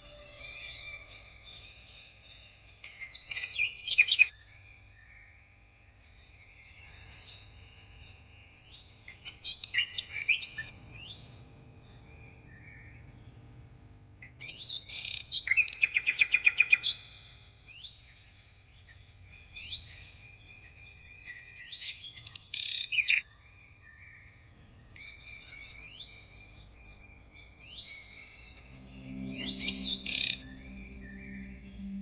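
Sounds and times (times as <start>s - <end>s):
songbirds chirping and singing: 0.0s - 13.5s, 14.2s - 32.0s
bird fast trill: 28.5s - 32.0s.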